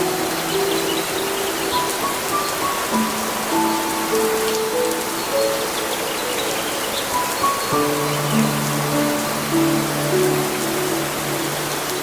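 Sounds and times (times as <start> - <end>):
rain falling: 0.0 - 12.0
slow music of long notes: 0.0 - 12.0.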